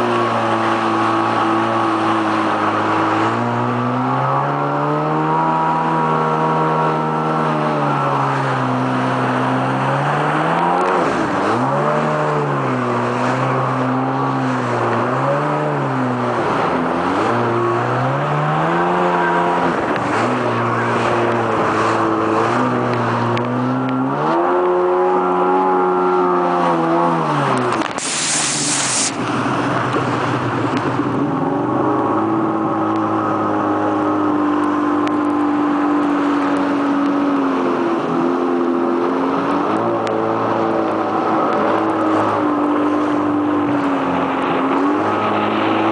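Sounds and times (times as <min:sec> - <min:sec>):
jet ski engine revving: 0:00.0 - 0:45.9
burst of hiss: 0:27.9 - 0:29.2.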